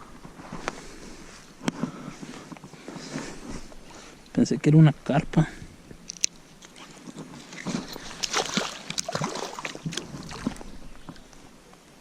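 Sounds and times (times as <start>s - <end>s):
clicks and rustles: 6.0s - 9.2s
water splashing and sloshing: 6.1s - 11.6s.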